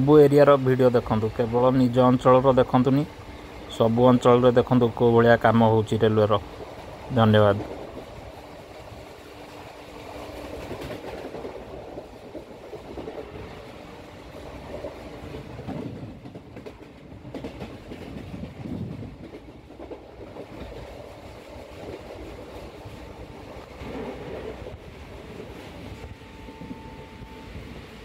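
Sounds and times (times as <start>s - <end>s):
train rolling noise: 0.0s - 28.0s.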